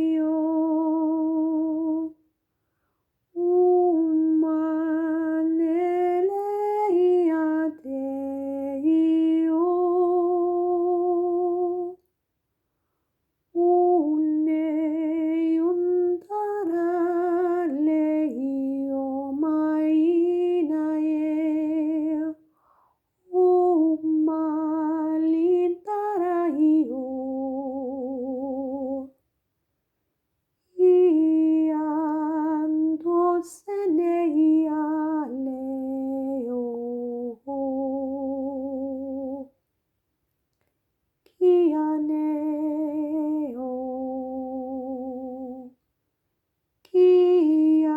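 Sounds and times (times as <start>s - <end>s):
woman humming a slow melody: 41.4s - 45.7s.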